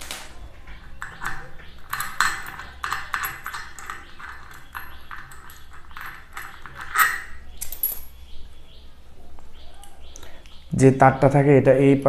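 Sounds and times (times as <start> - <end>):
metal pipe clinking and rattling: 0.4 - 8.2.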